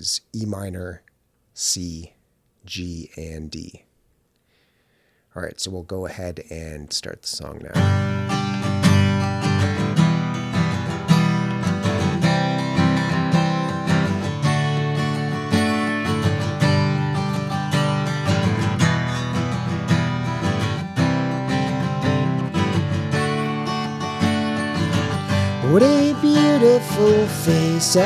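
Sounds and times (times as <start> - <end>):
acoustic guitar strumming: 7.7 - 28.0.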